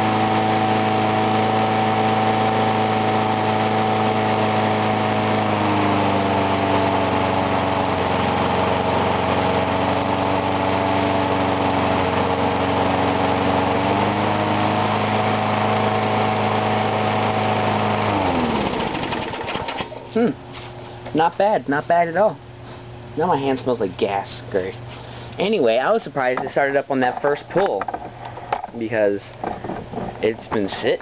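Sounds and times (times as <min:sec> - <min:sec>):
lawn mower engine running: 0:00.0 - 0:20.6.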